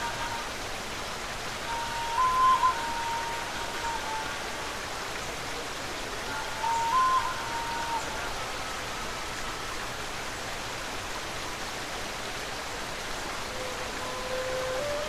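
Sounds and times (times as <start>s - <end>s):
ney flute note: 0.0s - 0.5s, 1.6s - 4.8s, 6.3s - 9.8s, 13.3s - 15.0s
river water rushing: 0.0s - 15.0s.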